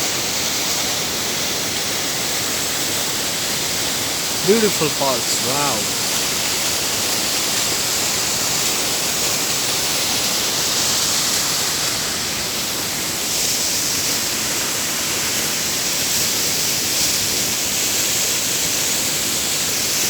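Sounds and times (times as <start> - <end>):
waterfall rushing: 3.8 - 7.0.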